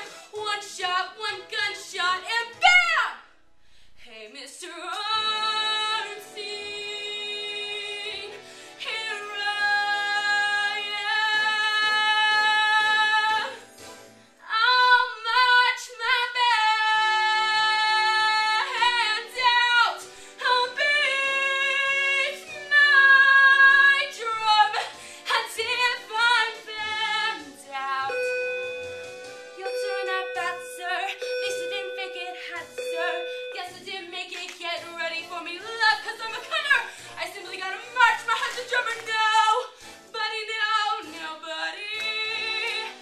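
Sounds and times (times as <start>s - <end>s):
woman singing a show tune: 0.0s - 3.3s, 4.0s - 13.6s, 14.4s - 28.5s, 29.6s - 43.0s
faint accompaniment: 25.2s - 43.0s.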